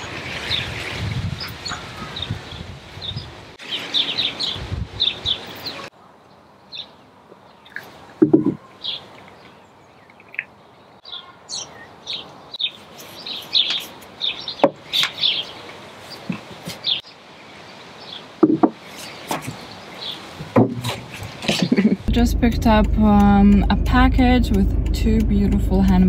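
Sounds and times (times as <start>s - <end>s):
songbirds chirping: 0.0s - 26.0s
sharp knocks: 8.2s - 8.6s, 18.4s - 19.6s, 20.4s - 21.1s.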